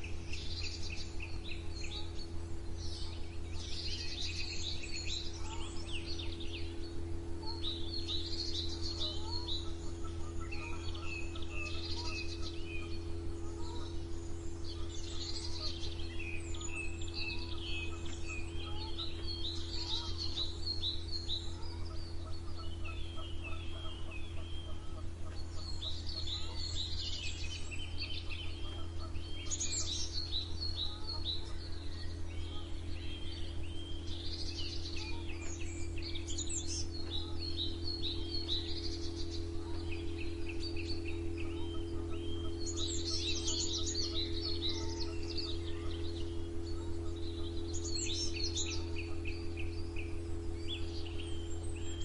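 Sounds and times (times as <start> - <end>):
low hum: 0.0 - 52.0
songbirds chirping and trilling: 0.0 - 52.0.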